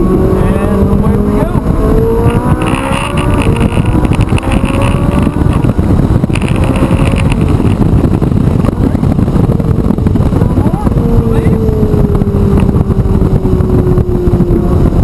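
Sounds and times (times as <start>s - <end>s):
sports car engine running hard: 0.0s - 15.0s.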